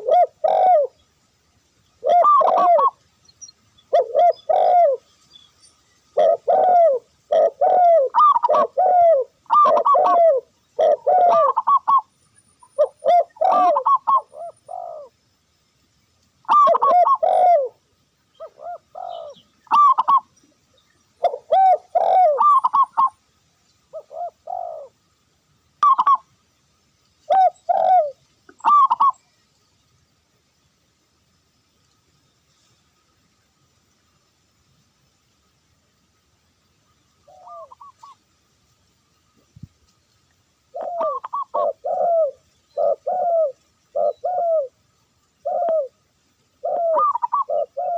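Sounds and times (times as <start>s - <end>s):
doves cooing: 0.0s - 1.0s, 2.0s - 3.0s, 3.9s - 5.1s, 6.1s - 12.1s, 12.7s - 15.2s, 16.5s - 17.8s, 18.4s - 20.3s, 21.2s - 23.2s, 23.9s - 25.0s, 25.8s - 26.2s, 27.3s - 29.2s, 37.2s - 38.2s, 40.7s - 44.8s, 45.4s - 46.0s, 46.6s - 47.9s.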